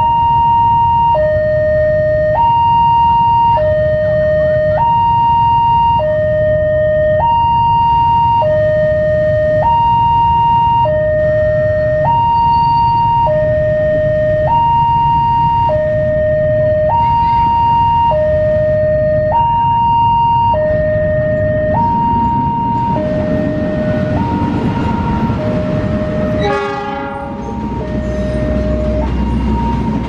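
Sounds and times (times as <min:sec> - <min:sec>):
level crossing two-tone alarm: 0:00.0 - 0:30.0
steady low rumble: 0:13.4 - 0:26.4.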